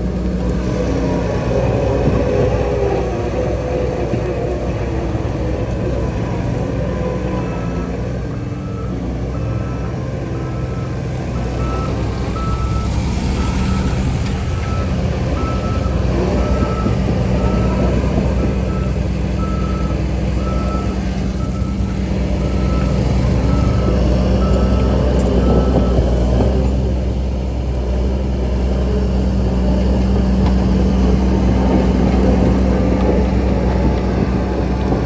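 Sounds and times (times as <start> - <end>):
diesel engine drone: 0.0 - 35.0
reverse backup alarm beeping: 7.5 - 14.0, 14.6 - 26.0.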